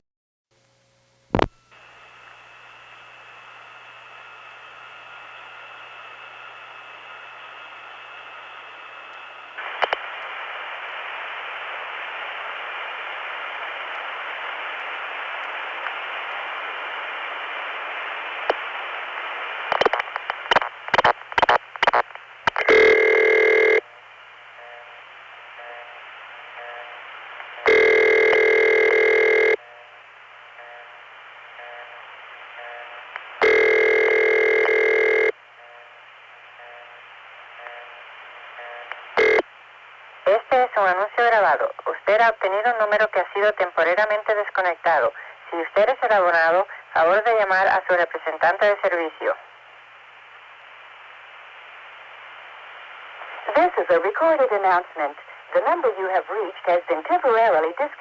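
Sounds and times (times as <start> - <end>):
telephone line hiss: 1.3 - 41.5
high-pitched telephone ringback: 22.7 - 23.8, 27.7 - 29.6, 33.4 - 35.3.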